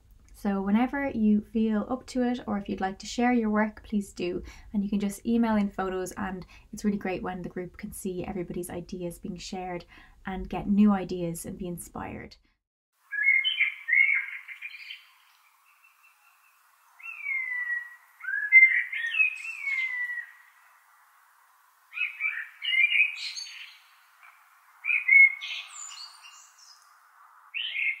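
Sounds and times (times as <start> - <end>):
bird song with whistled notes: 13.0 - 20.8, 21.9 - 26.9, 27.5 - 28.0.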